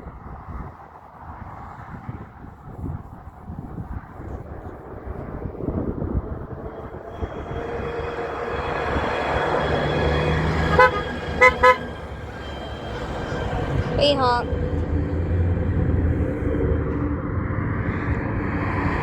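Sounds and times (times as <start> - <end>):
truck engine and tyre noise: 0.0 - 19.0
short horn toots: 10.5 - 12.1.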